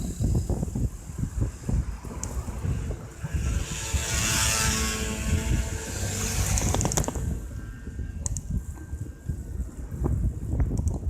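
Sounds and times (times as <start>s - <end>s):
bike rolling on road rumble: 0.0s - 11.0s
wind buffeting microphone: 0.0s - 11.0s
sharp clicks or rattles: 6.4s - 7.3s, 10.7s - 11.0s.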